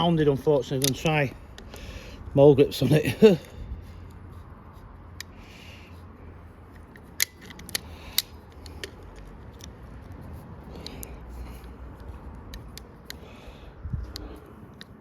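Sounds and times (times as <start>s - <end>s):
locking pliers clicking: 0.6s - 1.8s, 6.8s - 9.8s.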